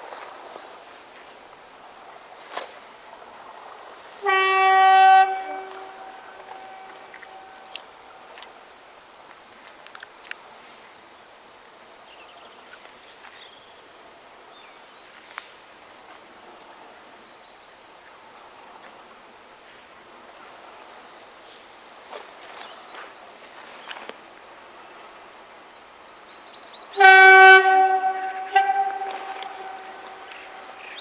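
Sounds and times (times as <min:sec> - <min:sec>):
small birds chirping: 0:26.1 - 0:31.0.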